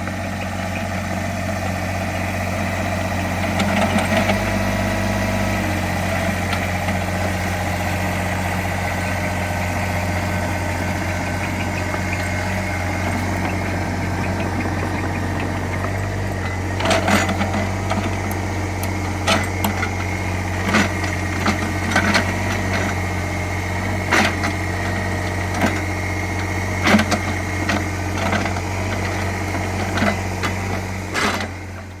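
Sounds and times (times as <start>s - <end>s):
excavator diesel engine running: 0.0s - 32.0s
knocks and clanks of digging: 11.7s - 23.1s, 23.8s - 31.9s.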